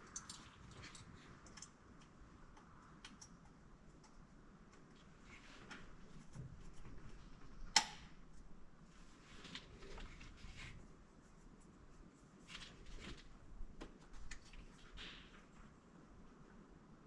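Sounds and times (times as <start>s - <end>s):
small scrapes and clicks of handling: 0.0s - 6.9s.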